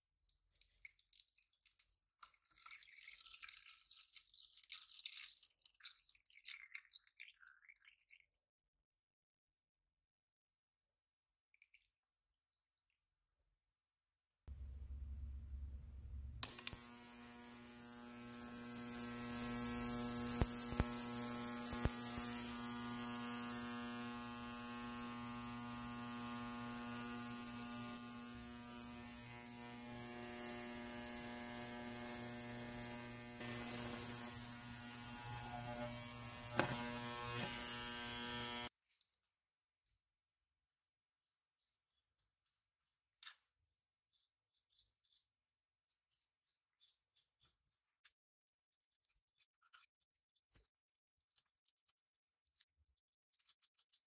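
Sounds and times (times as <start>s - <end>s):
power tool motor running: 16.4s - 38.7s.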